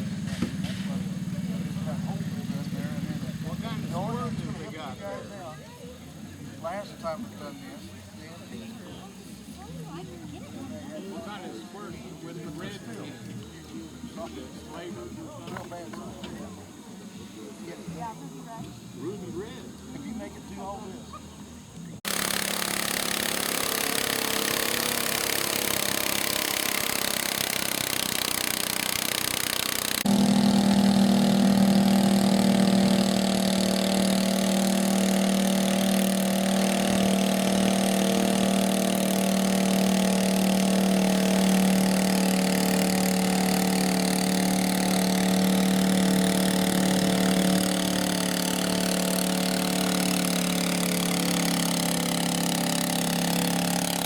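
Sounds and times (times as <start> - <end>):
louder engine hum: 0.0 - 5.1, 22.0 - 54.0
small tractor engine running: 0.0 - 5.2, 21.4 - 54.0.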